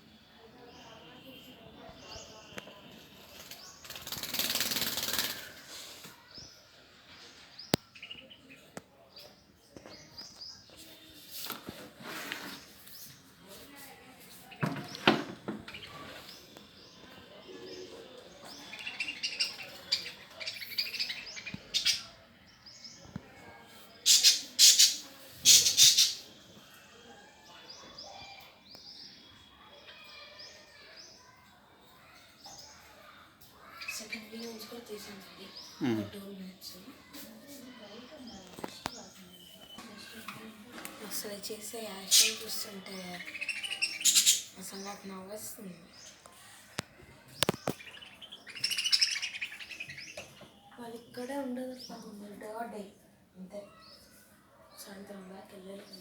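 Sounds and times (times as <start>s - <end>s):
lovebirds chirping: 0.0s - 31.4s, 32.0s - 56.0s
lovebirds calling loudly: 14.5s - 23.2s, 24.0s - 26.6s, 38.2s - 46.2s, 46.8s - 52.2s.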